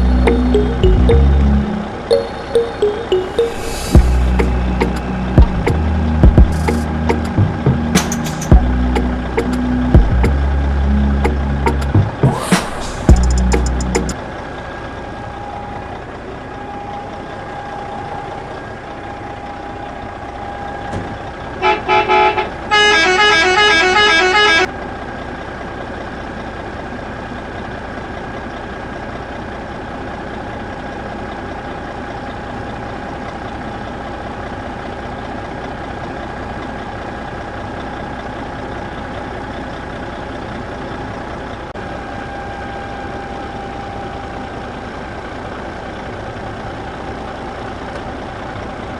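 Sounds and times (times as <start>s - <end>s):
engine hum: 0.0s - 48.9s
vehicle horn toots: 21.6s - 24.7s.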